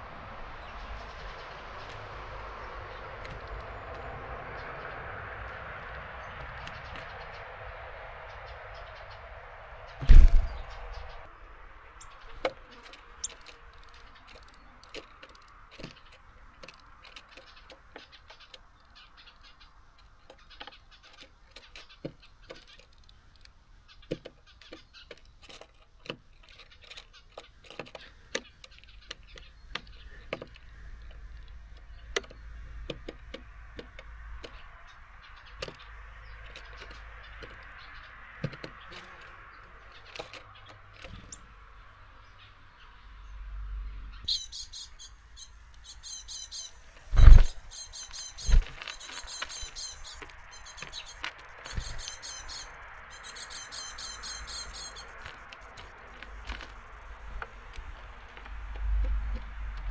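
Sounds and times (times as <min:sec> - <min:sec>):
birds pecking at seeds: 0:00.6 - 0:09.1, 0:10.0 - 0:42.2, 0:44.0 - 0:59.9.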